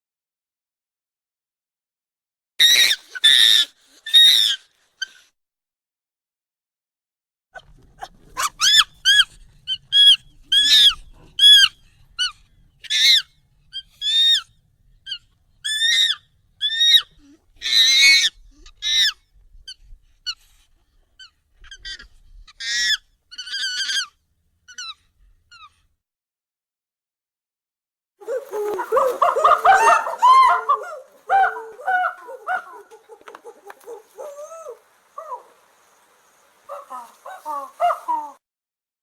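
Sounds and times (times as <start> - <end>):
high monkey calls: 2.6 - 5.2, 7.6 - 14.5, 15.1 - 19.2, 21.2 - 25.7, 28.2 - 38.4
monkey screeching: 2.6 - 5.2, 8.4 - 14.5, 15.1 - 19.2, 21.2 - 25.7, 28.2 - 35.5, 36.7 - 38.4.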